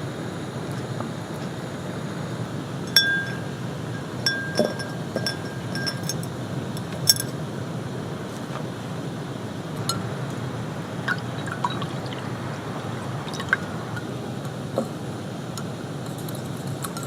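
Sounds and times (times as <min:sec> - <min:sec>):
gentle rain hiss: 0:00.0 - 0:17.0
tableware clinking: 0:02.9 - 0:03.5, 0:04.3 - 0:06.3.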